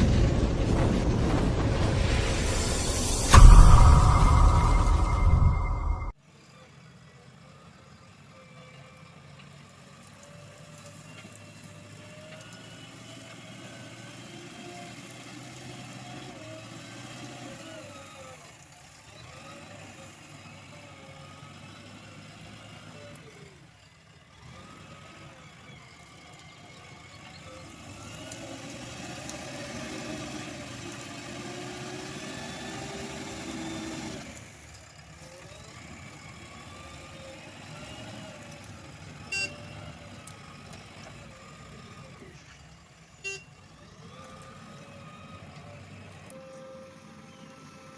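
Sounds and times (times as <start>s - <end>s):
diesel engine revving: 11.4s - 47.9s.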